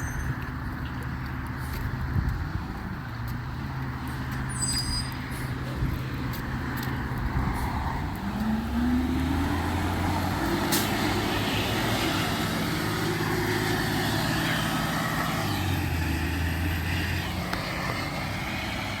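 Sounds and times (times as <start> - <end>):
truck engine revving: 5.4 - 19.0.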